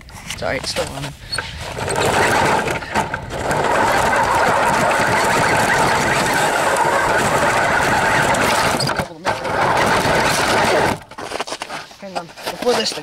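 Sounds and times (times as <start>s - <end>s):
electric motor and gears whirring: 1.3s - 11.2s.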